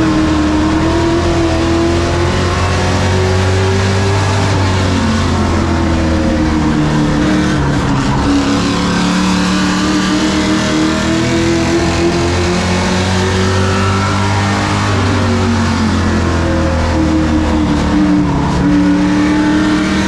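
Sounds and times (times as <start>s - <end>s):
race truck engines: 0.0s - 20.0s.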